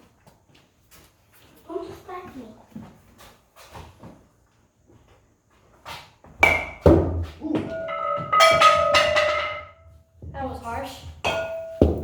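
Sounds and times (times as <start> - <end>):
bat hitting ball ping: 6.4 - 7.1, 7.7 - 9.8, 11.3 - 12.0
high held tone: 7.7 - 9.8.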